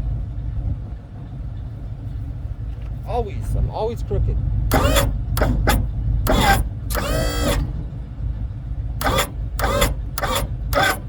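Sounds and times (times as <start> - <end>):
truck engine idling: 4.3 - 11.0.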